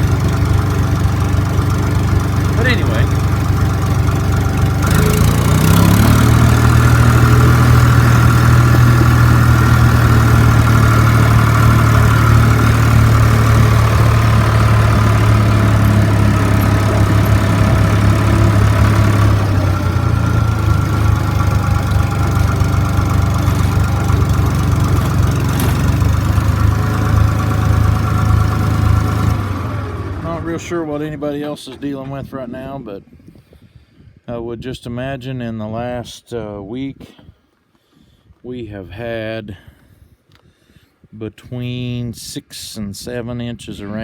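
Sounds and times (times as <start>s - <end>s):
tractor diesel engine running: 0.0s - 32.3s.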